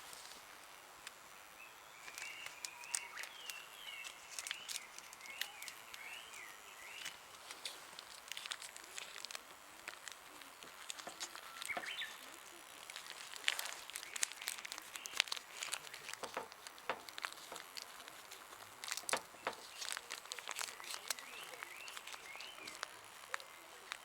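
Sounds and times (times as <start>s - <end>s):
crinkling and crackling clicks: 0.0s - 24.0s
bird chirping: 1.6s - 7.2s, 11.0s - 12.3s, 19.3s - 22.8s.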